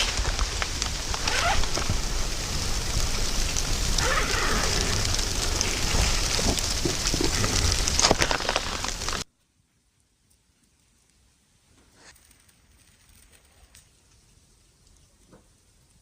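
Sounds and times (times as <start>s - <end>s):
steady rain falling: 0.0s - 9.3s, 9.9s - 16.0s.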